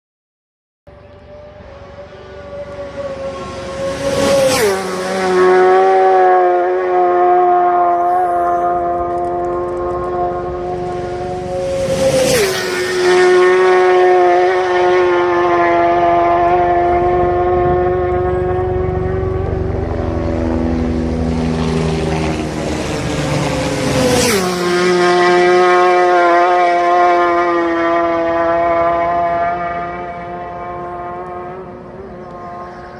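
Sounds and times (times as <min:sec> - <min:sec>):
motorcycles passing at high revs: 0:00.9 - 0:32.9.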